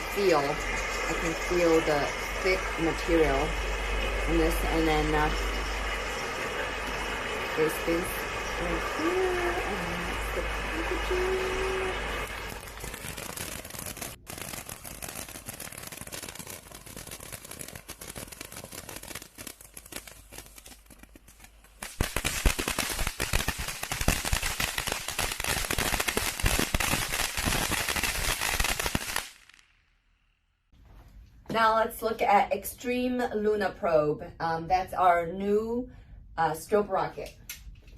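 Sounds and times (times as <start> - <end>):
firework fountain crackling: 0.0 - 29.8.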